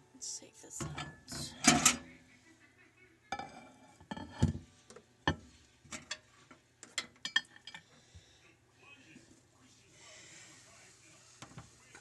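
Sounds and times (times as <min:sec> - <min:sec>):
knocks and clinks: 0:06.8 - 0:07.8.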